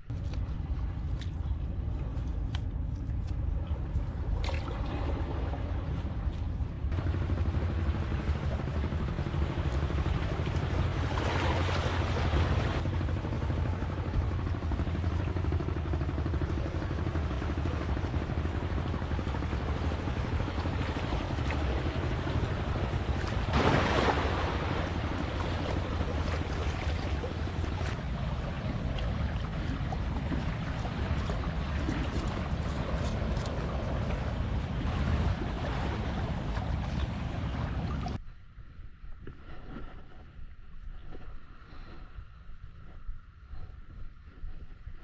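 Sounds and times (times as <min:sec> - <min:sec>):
wind rumbling on microphone: 0:00.0 - 0:45.0
surf washing: 0:06.9 - 0:38.2.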